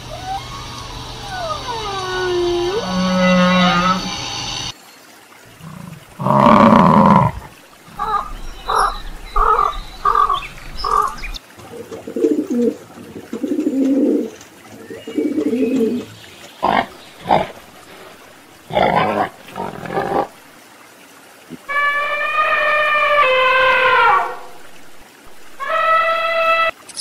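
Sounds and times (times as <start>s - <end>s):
pigeon cooing: 0.1s - 4.1s, 11.7s - 14.4s
cow mooing: 1.4s - 4.2s, 21.7s - 24.4s
wild boar grunting: 5.6s - 8.2s, 16.6s - 20.4s.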